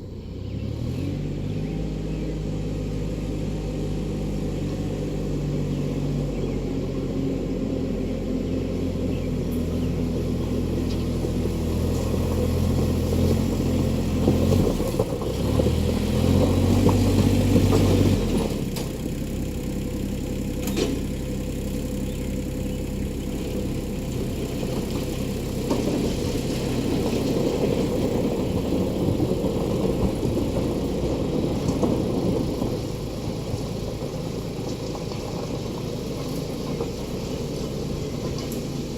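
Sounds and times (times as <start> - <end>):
diesel van engine running: 0.0 - 38.9.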